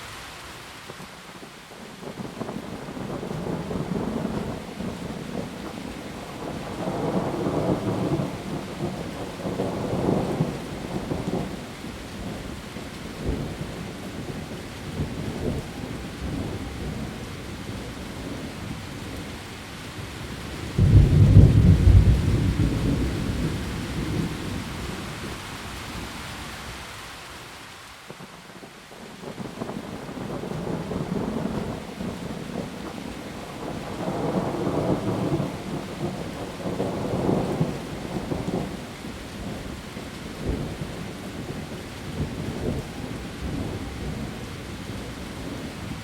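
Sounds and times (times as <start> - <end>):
heavy rain on leaves: 0.0 - 46.0
rolling thunder: 20.6 - 25.3
loud thunderclap: 20.8 - 24.6.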